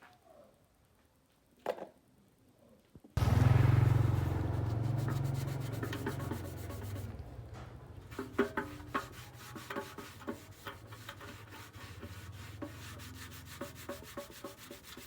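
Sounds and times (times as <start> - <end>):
power tool sanding: 3.2 - 7.4.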